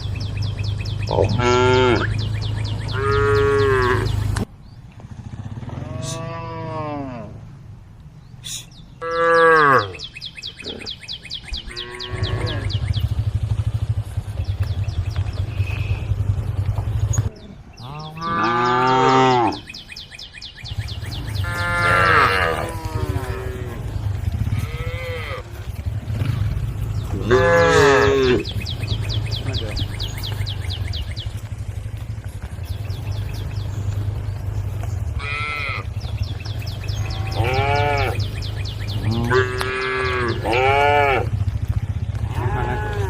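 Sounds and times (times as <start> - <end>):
cows mooing: 1.0 - 4.4, 5.6 - 7.5, 9.0 - 11.0, 11.6 - 13.1, 17.1 - 19.8, 21.0 - 31.7, 32.4 - 43.0.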